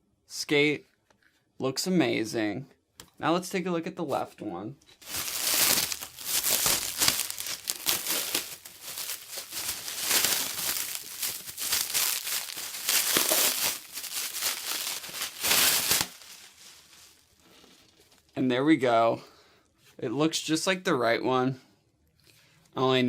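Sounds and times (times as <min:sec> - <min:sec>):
packaging crinkling and rustling: 0:05.0 - 0:18.4.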